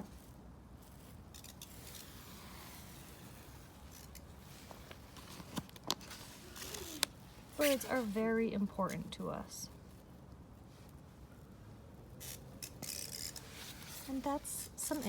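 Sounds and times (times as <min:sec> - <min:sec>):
light clicks of book pages: 0:04.1 - 0:07.2.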